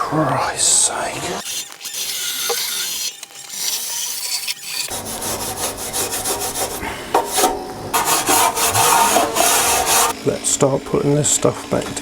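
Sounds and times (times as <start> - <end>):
harsh rasping and scraping: 1.4 - 10.2.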